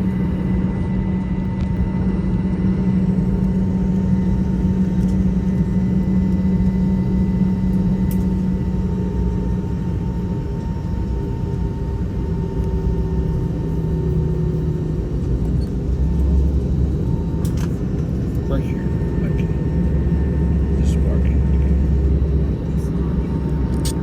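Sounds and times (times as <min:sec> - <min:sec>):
aircraft cabin rumble: 0:00.0 - 0:24.0
faint steady whine: 0:00.0 - 0:24.0
low hum: 0:00.0 - 0:24.0.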